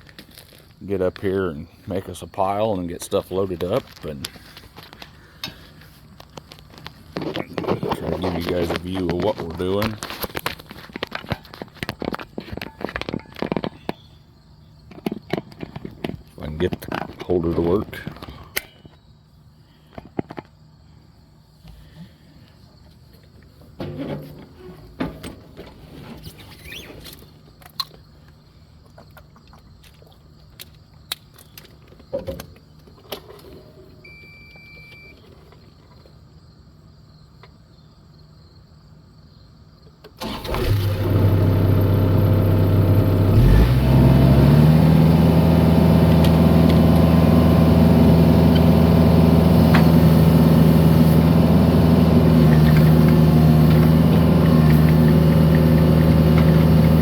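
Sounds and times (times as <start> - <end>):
short beep: 34.1 - 35.2
excavator engine running: 40.2 - 57.0.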